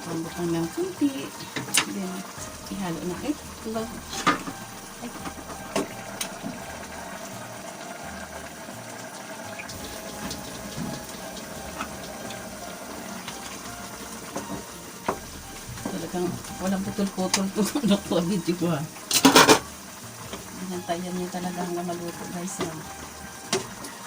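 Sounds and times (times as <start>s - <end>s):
pot bubbling: 0.0s - 24.0s.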